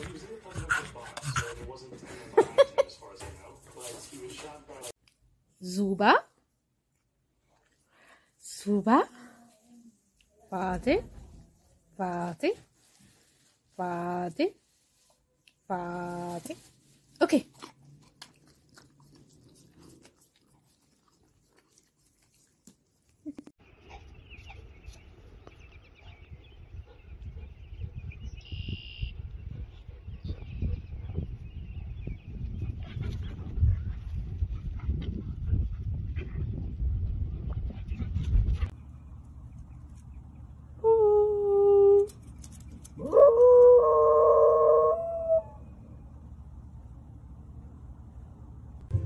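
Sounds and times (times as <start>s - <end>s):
birds chirping: 23.6s - 32.8s
dog howling: 43.0s - 45.7s
low rumbling noise: 45.2s - 49.0s.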